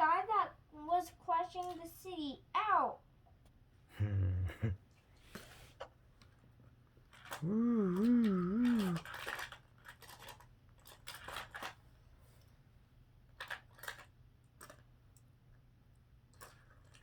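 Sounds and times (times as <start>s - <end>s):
plastic toy cars clicking: 8.6s - 11.8s, 13.4s - 14.8s.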